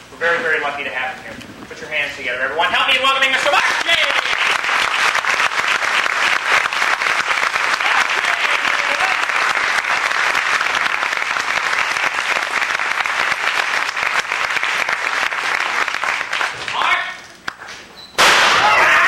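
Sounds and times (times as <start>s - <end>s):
studio audience applauding: 3.3s - 17.0s.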